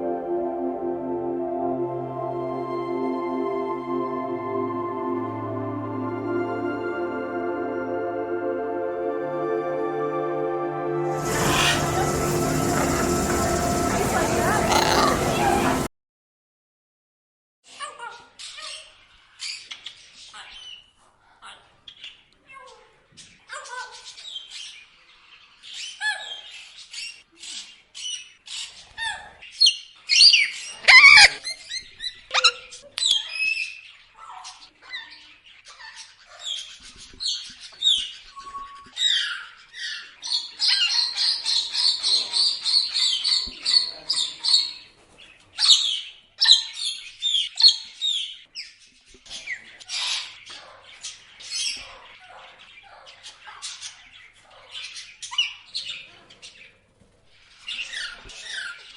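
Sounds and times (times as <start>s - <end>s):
parrots chirping and squawking: 11.1s - 15.9s, 23.5s - 44.8s.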